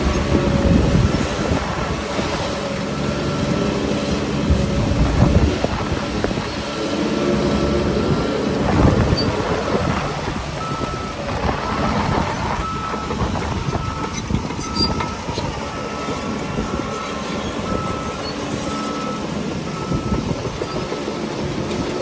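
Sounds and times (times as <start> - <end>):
diesel engine running: 0.0 - 22.0
reversing alarm beeps: 10.6 - 11.5, 12.6 - 21.1.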